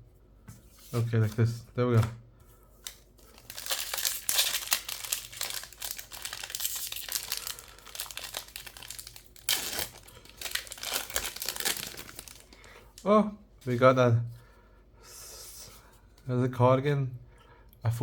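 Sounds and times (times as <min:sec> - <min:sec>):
foil wrapper crinkling and tearing: 0:02.8 - 0:13.0.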